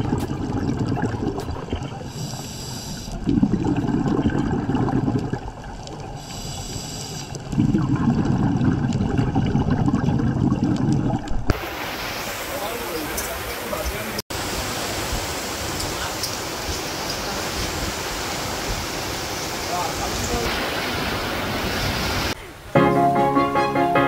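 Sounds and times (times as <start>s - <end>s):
bubbling exhale: 0.0s - 11.5s
regulator hissing inhale: 2.1s - 3.2s, 6.2s - 7.4s.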